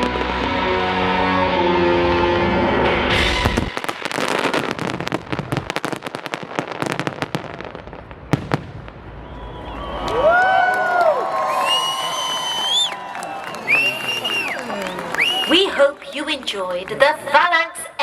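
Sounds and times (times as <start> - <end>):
orchestral show music: 0.0 - 3.9
fireworks crackling and banging: 3.1 - 12.9, 13.7 - 17.6.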